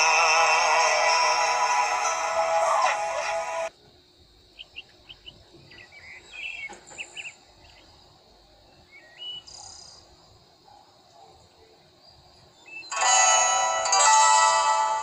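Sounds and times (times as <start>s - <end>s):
music: 0.0s - 3.7s, 12.9s - 15.0s
faint high whine: 0.0s - 15.0s
small bird chirping: 4.5s - 10.1s, 12.0s - 13.0s.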